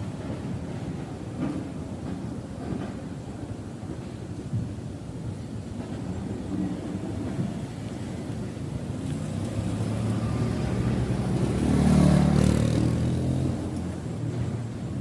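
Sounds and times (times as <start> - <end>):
vehicle engine passing by: 9.0 - 14.0.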